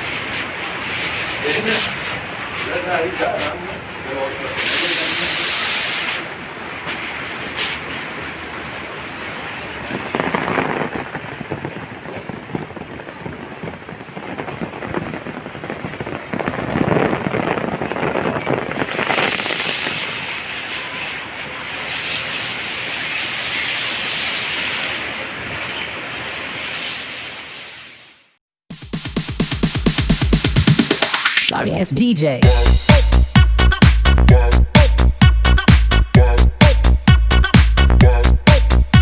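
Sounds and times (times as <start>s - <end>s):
heavy rain falling: 0.0s - 28.0s.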